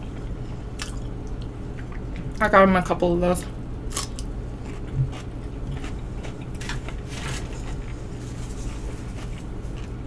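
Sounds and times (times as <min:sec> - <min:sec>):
steady low hum: 0:00.0 - 0:10.0
person chewing crunchy food: 0:03.9 - 0:10.0.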